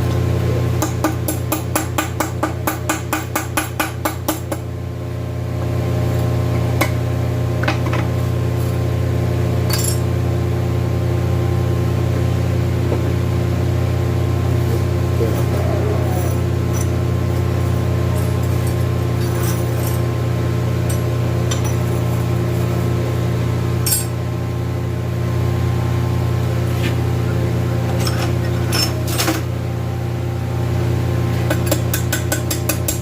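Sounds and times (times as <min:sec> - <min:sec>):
steady mechanical hum: 0:00.0 - 0:33.0
metal clinks: 0:09.7 - 0:10.1, 0:23.8 - 0:24.1.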